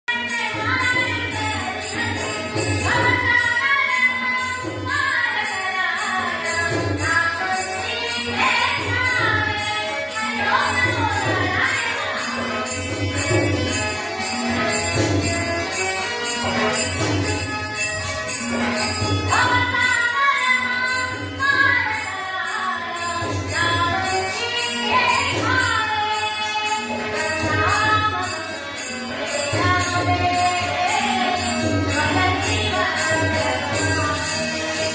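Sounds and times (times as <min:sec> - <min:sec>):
jingling percussion: 0:00.1 - 0:34.9.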